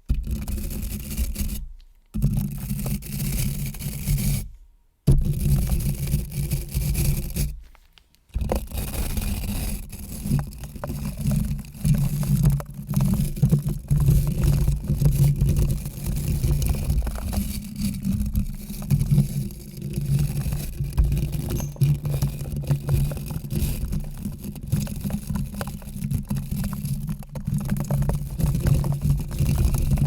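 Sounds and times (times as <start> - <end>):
close scraping and rubbing: 5.2 - 30.0.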